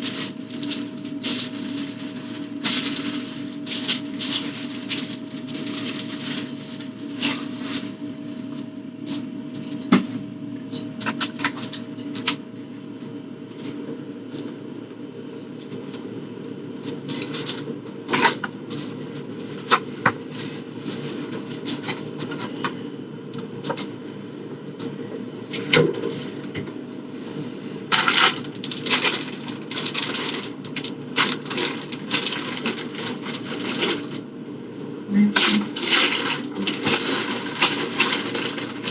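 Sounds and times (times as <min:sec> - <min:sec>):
packaging rustling: 0:00.0 - 0:09.3, 0:27.9 - 0:38.9
steady low hum: 0:00.0 - 0:38.9.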